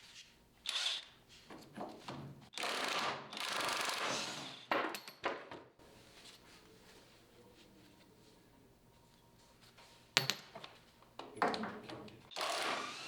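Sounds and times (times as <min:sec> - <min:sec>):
rasping tool noise: 0:12.3 - 0:13.0.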